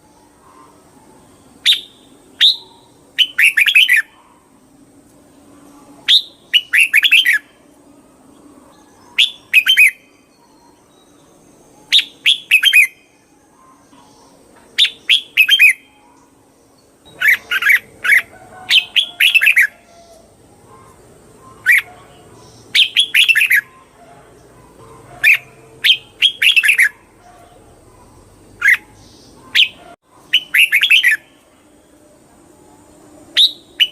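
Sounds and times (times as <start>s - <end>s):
bird singing bubbly phrases: 6.1s - 7.5s, 20.7s - 23.9s, 25.3s - 27.0s, 28.6s - 31.4s.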